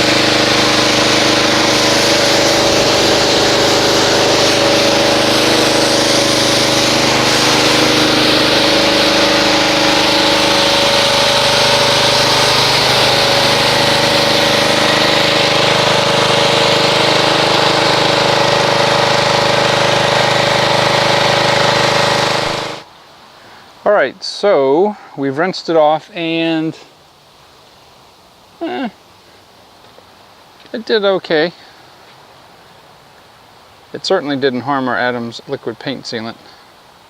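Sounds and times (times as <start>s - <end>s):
pressure washer running: 0.0s - 22.9s.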